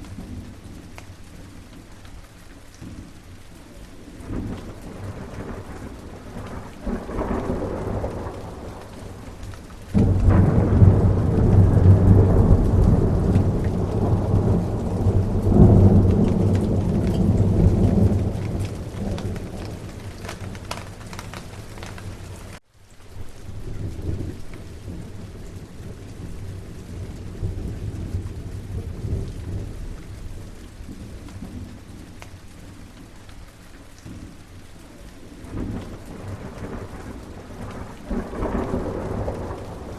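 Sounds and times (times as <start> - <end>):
steady rain: 0.0 - 39.9
rolling thunder: 4.2 - 22.6, 23.4 - 31.9, 35.4 - 39.9.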